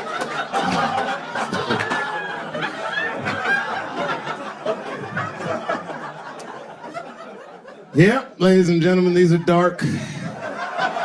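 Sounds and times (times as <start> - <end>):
audience cheering and laughing: 0.0 - 8.1, 8.8 - 11.0
scattered claps: 0.1 - 2.2.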